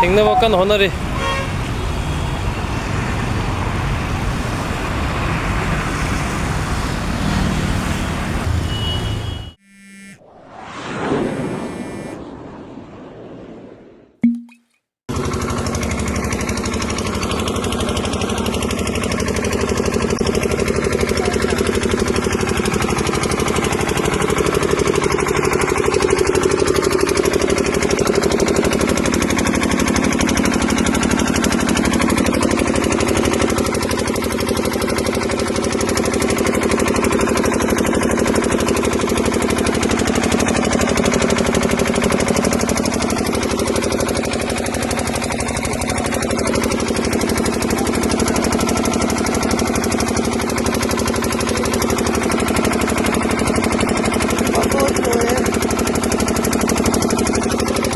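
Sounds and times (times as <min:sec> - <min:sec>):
engine chugging steadily: 0:15.1 - 0:57.9.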